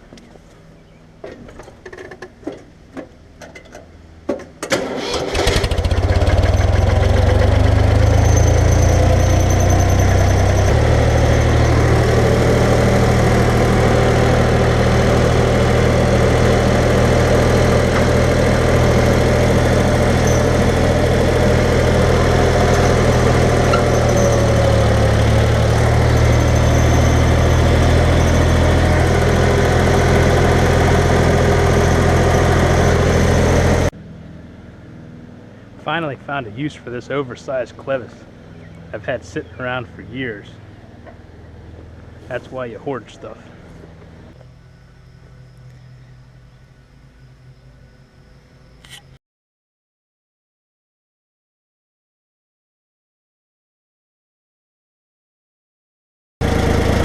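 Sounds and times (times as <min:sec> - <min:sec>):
tractor engine starting and idling: 0:01.2 - 0:34.0, 0:56.4 - 0:57.0.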